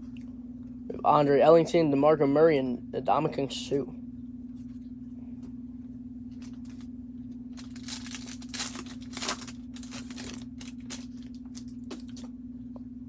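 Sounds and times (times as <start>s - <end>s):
low electrical hum: 0.0s - 13.0s
wrapper tearing and crinkling: 6.4s - 6.9s, 7.5s - 12.3s.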